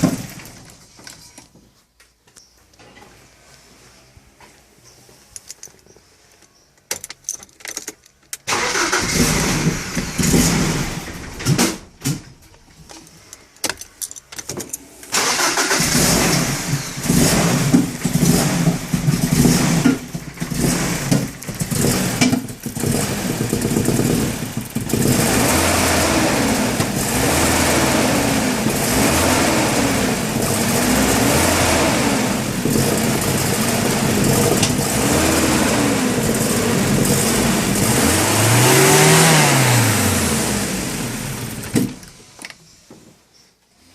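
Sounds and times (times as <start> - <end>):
car engine starting: 0.0 - 1.0, 8.4 - 14.0, 14.7 - 42.4
engine rough idle: 15.4 - 38.4.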